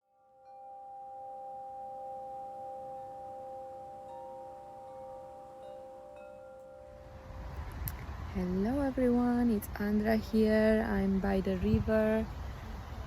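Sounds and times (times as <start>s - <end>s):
bell-like ringing tones: 0.0s - 7.6s.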